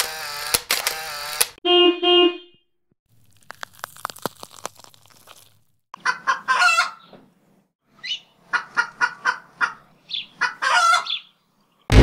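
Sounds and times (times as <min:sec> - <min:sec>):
chicken clucking: 0:06.0 - 0:07.1, 0:08.1 - 0:11.3.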